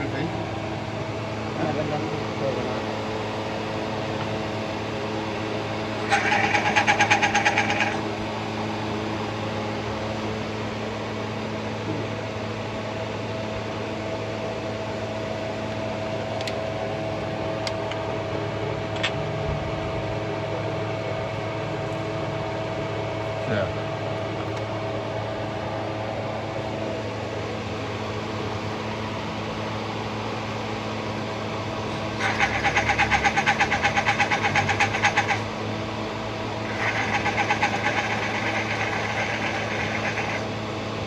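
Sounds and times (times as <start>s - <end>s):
rapid rattling pulses: 3.7s - 8.2s, 30.4s - 41.0s
car engine running: 27.7s - 41.0s.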